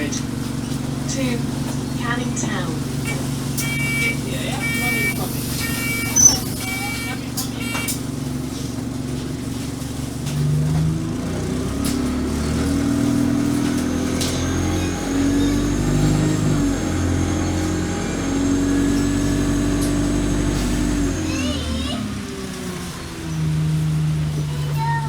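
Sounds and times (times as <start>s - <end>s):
bus diesel engine pulling: 0.0s - 25.0s
faint high whine: 3.6s - 8.0s.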